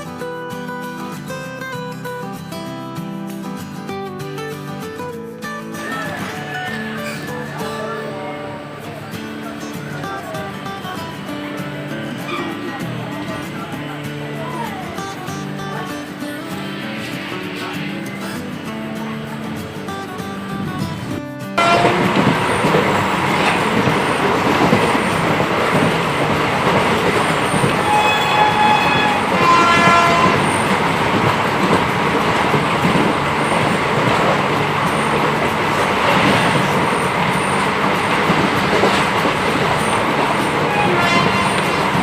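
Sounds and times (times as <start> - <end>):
train wheels rumbling and rattling: 8.7 - 42.0
train horn blasts: 21.6 - 25.3, 27.2 - 31.7, 40.6 - 42.0.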